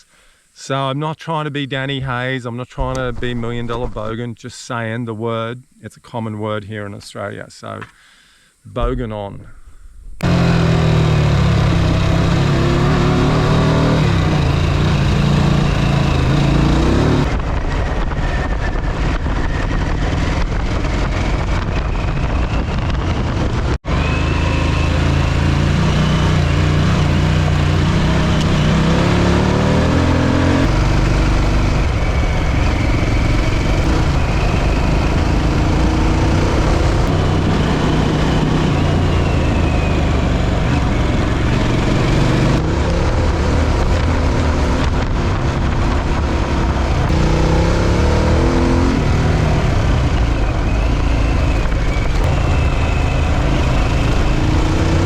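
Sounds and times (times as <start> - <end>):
motorcycle engine revving: 10.2 - 55.0
wind rushing over microphone: 14.0 - 23.9, 27.0 - 55.0.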